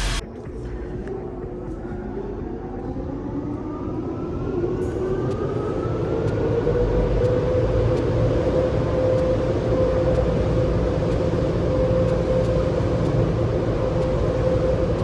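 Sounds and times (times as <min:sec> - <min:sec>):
car wash machinery rumbling: 0:00.0 - 0:00.3.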